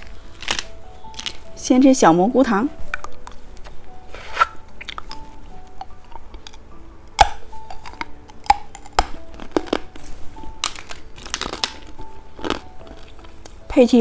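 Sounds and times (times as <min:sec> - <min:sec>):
hard candies clicking and clinking: 0:00.0 - 0:01.6, 0:04.8 - 0:13.7
soft background music: 0:00.0 - 0:14.0.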